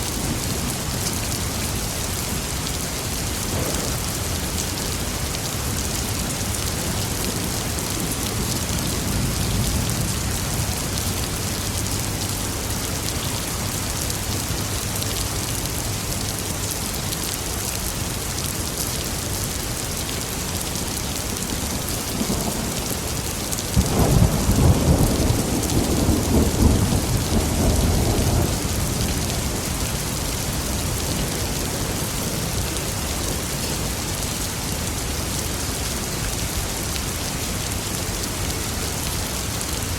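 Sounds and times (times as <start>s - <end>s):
heavy rain: 0.0s - 39.9s
rolling thunderclap: 3.4s - 4.5s, 23.7s - 29.6s
distant thunder rumble: 3.5s - 4.6s, 23.7s - 29.8s.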